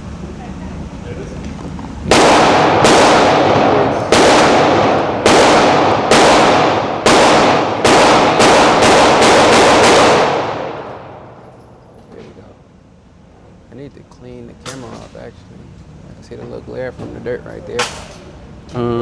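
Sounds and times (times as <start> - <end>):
rapid pistol shots echoing: 2.1 - 11.5, 17.8 - 18.2.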